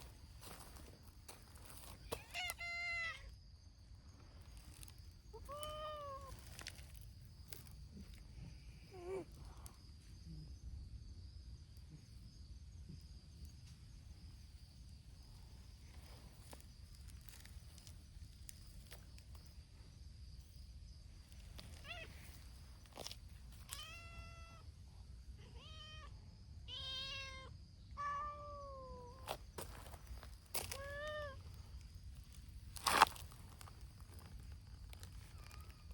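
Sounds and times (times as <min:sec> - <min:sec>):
cats meowing: 0:02.0 - 0:03.3, 0:05.3 - 0:06.6, 0:21.8 - 0:22.2, 0:23.6 - 0:24.6, 0:25.4 - 0:29.2, 0:30.6 - 0:31.4.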